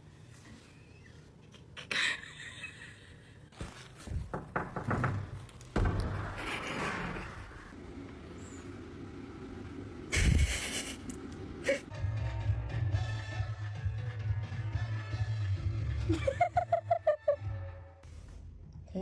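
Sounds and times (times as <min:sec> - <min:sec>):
dull thumps and knocks: 0:04.0 - 0:06.3.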